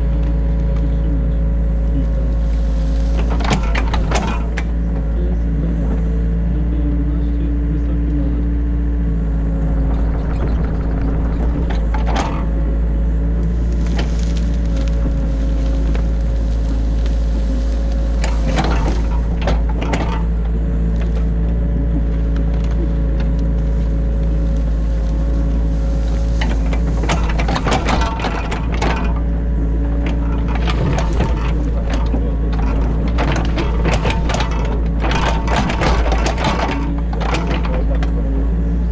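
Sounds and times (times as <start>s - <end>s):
excavator engine and hydraulics: 0.0s - 38.9s
cracking and knocking: 1.7s - 5.2s, 9.5s - 38.9s
bucket scraping and knocking: 25.0s - 38.2s.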